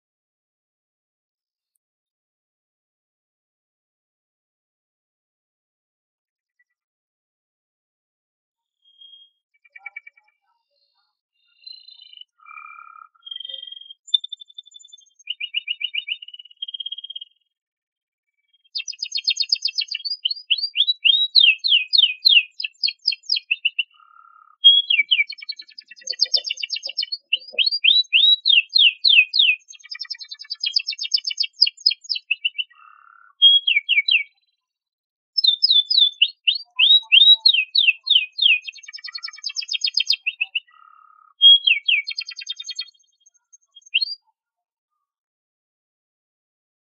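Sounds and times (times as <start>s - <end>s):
canary singing: 11.6s - 17.2s, 18.7s - 34.5s, 35.4s - 44.3s.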